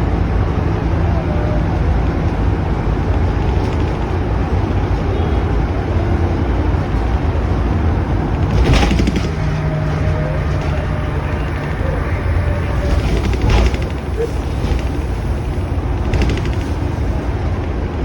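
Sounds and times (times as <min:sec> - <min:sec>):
vehicle rumbling on the move: 0:00.0 - 0:18.0
steady hum: 0:07.9 - 0:18.0.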